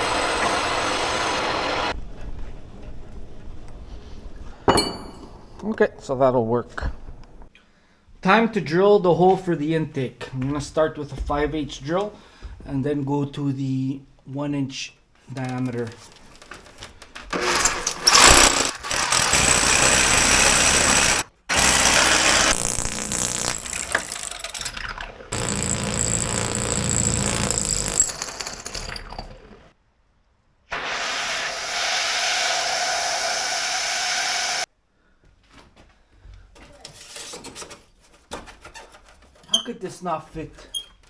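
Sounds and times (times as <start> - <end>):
power drill boring through concrete: 0.0 - 1.9, 17.3 - 24.7, 25.3 - 29.4, 31.0 - 34.7.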